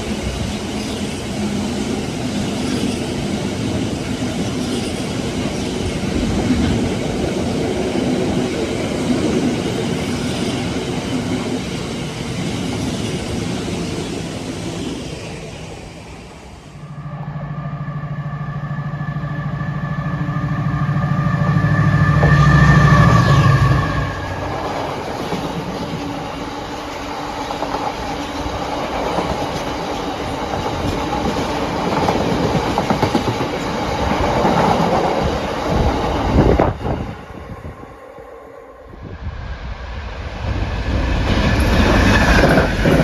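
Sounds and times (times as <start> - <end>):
diesel locomotive engine: 0.0 - 43.0
train wagons clacking over rails: 20.3 - 37.4, 40.8 - 43.0.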